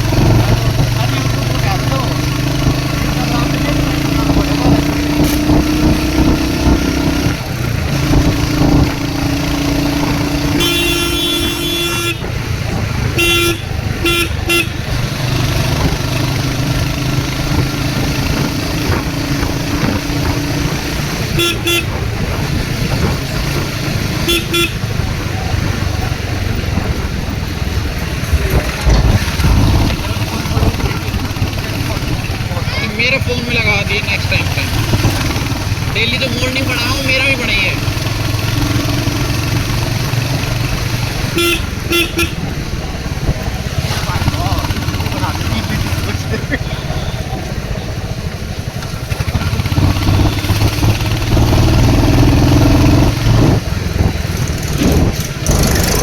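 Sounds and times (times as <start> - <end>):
motorcycle engine running: 0.0 - 56.0
road and wind noise: 0.0 - 56.0
horn toots: 8.0 - 15.1, 21.1 - 25.7, 33.7 - 48.0, 49.0 - 53.6
vehicle horn beeps: 10.5 - 12.4, 13.2 - 14.9, 21.3 - 22.0, 24.2 - 24.8, 41.4 - 42.5, 46.6 - 47.6.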